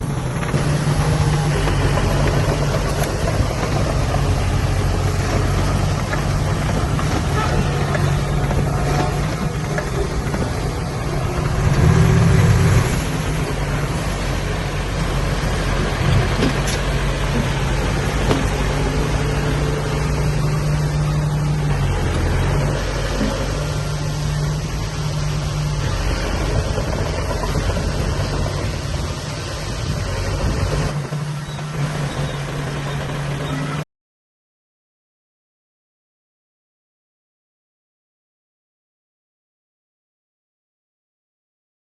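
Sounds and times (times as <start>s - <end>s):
heavy diesel machinery running: 0.0s - 33.9s.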